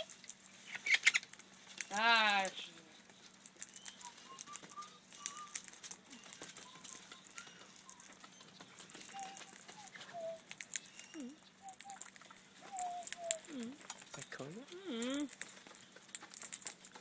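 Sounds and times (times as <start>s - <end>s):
faint clicks and ticks: 0.0s - 17.0s
parrots whistling: 0.7s - 1.3s, 3.6s - 13.9s.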